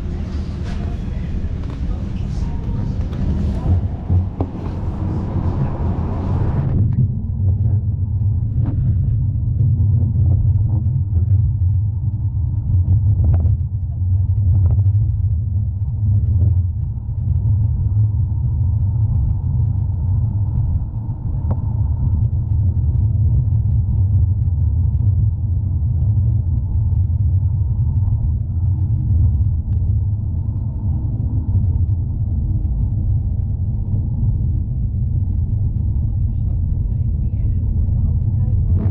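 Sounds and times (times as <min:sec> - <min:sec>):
tram rumbling on rails: 0:00.0 - 0:12.4, 0:27.4 - 0:38.9.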